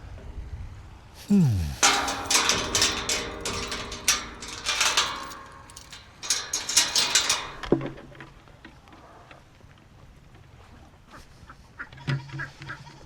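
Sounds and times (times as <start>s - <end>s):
hard objects clattering: 1.3s - 8.2s.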